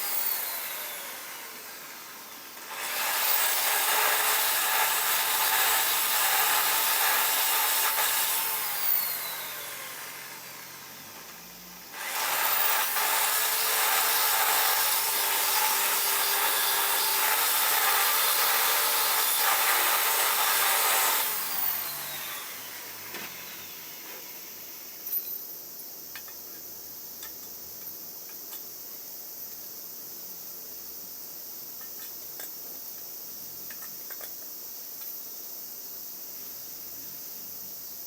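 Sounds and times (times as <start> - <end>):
power tool grinding: 0.0 - 24.4.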